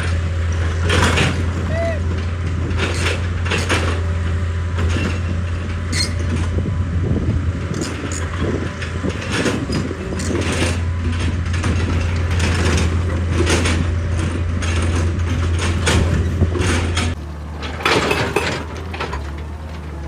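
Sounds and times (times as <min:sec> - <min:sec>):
excavator diesel engine droning: 0:00.0 - 0:20.0.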